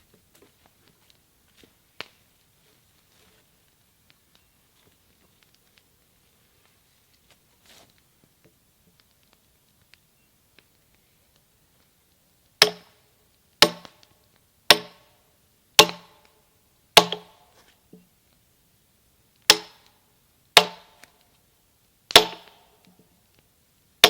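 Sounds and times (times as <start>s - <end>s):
sledgehammer striking metal wedge: 12.6s - 12.9s, 13.6s - 14.0s, 14.7s - 15.1s, 15.8s - 16.3s, 17.0s - 17.4s, 19.5s - 19.9s, 20.6s - 21.0s, 22.1s - 22.6s.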